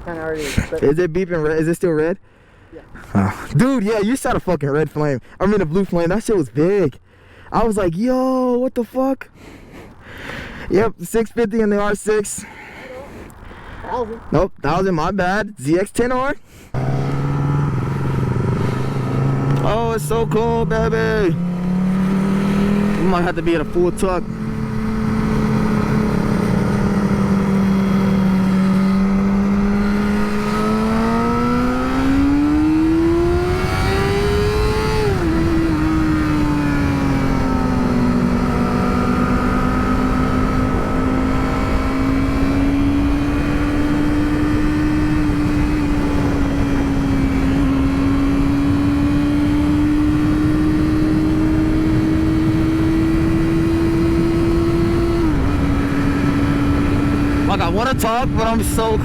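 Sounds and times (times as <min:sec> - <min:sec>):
motorcycle engine revving: 0:16.7 - 0:59.0
wind on microphone: 0:24.2 - 0:59.0.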